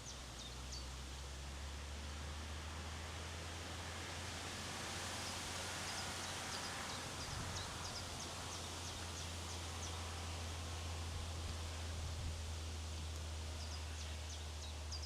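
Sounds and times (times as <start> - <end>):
wind rumble on microphone: 6.7 - 15.0.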